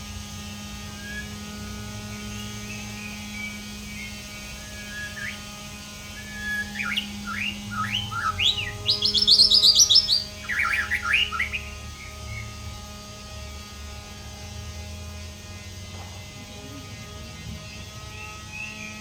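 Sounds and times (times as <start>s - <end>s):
electrical hum: 0.0s - 19.0s
bird singing whistled notes: 0.8s - 12.7s, 17.7s - 19.0s
fast high bird trill: 0.8s - 12.7s.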